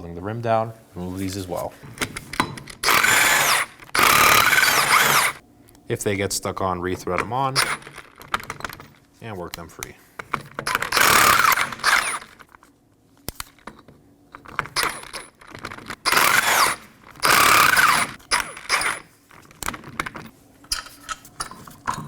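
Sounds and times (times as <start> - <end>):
power wrench spinning: 2.8 - 5.4, 7.6 - 8.0, 10.7 - 12.4, 14.8 - 19.1.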